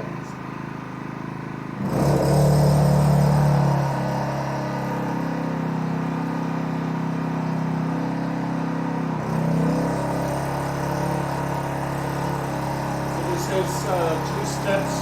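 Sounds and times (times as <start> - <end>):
generator engine idling: 0.0 - 1.8, 10.4 - 15.0.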